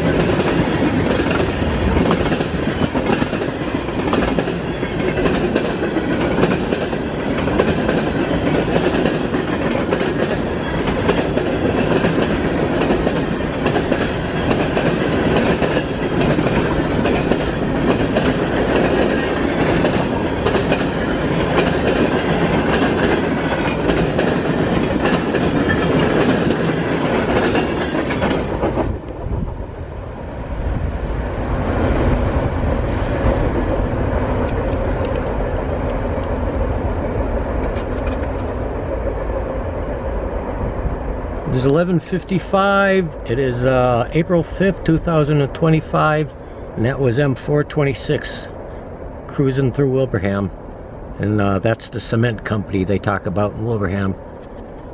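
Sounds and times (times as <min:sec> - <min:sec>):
wheels clacking over rail joints: 0:00.0 - 0:29.2, 0:31.4 - 0:39.2
freight train rolling past: 0:00.0 - 0:54.9.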